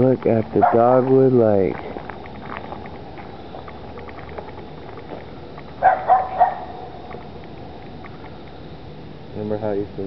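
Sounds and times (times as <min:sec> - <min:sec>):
background hiss: 0:00.0 - 0:10.0
dog barking: 0:05.8 - 0:06.9.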